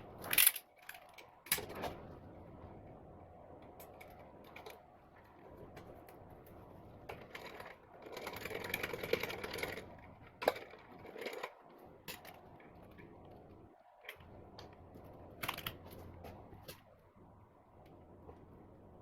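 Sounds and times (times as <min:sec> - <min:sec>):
metal parts and tools rattling: 0:00.2 - 0:01.9, 0:07.1 - 0:13.0.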